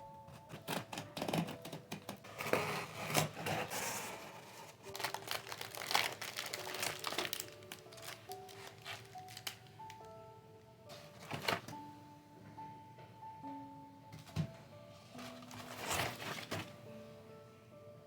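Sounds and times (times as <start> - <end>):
packaging crinkling and rustling: 0.3 - 10.2, 10.9 - 11.8, 15.1 - 16.9.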